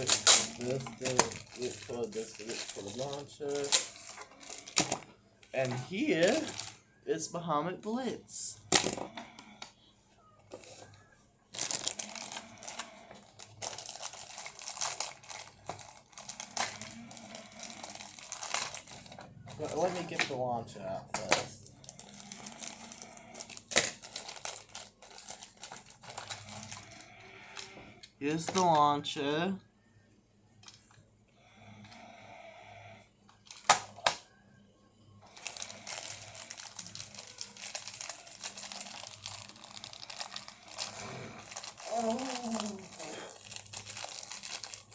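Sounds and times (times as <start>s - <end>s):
plastic packaging crinkling: 0.0s - 6.8s, 10.5s - 29.0s, 30.6s - 31.0s, 33.3s - 34.2s, 35.2s - 44.9s.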